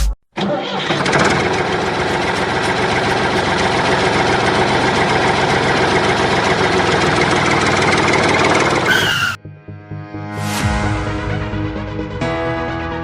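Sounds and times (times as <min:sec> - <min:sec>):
tractor engine idling: 0:00.4 - 0:09.4.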